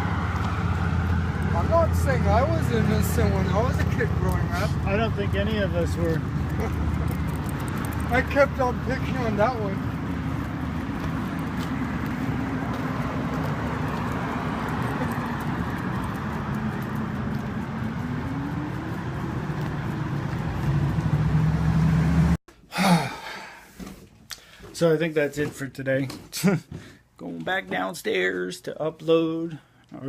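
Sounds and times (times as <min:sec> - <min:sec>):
road noise: 0:00.0 - 0:22.4
vehicle engine running: 0:00.0 - 0:22.4.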